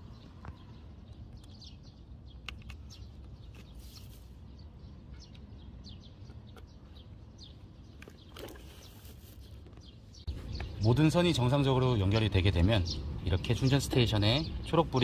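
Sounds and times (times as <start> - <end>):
small birds chirping: 0.0 - 15.0
sharp clicks: 2.4 - 3.0.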